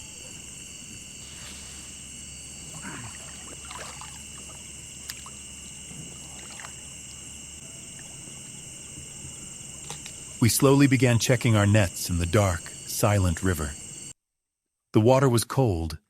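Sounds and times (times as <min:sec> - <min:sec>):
water splashes and drips: 0:00.0 - 0:11.1
crickets and insects trilling: 0:00.0 - 0:14.1.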